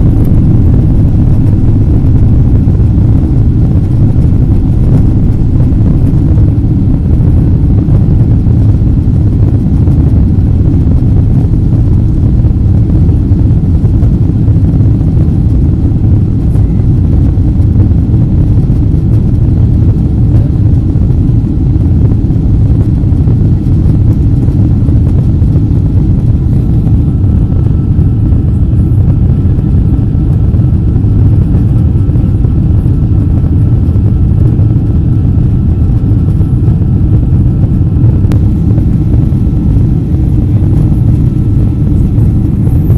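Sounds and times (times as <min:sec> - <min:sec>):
jet engine rumble in cabin: 0:00.0 - 0:42.9.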